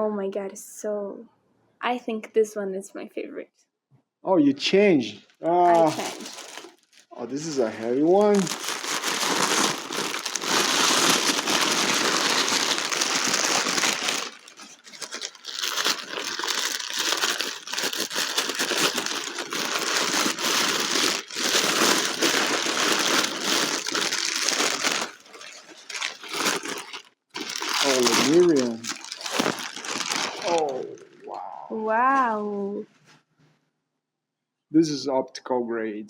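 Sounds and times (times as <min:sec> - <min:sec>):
packing paper crinkling: 0:05.4 - 0:31.2.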